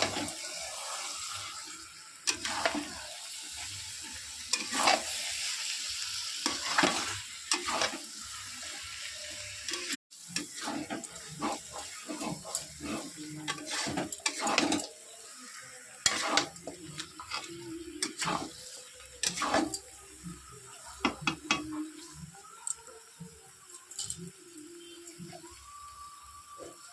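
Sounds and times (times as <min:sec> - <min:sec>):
curry sizzling in a pan: 0:00.0 - 0:26.9
utensil scraping a pan: 0:02.3 - 0:03.0, 0:04.5 - 0:05.2, 0:09.7 - 0:15.0, 0:16.0 - 0:19.9.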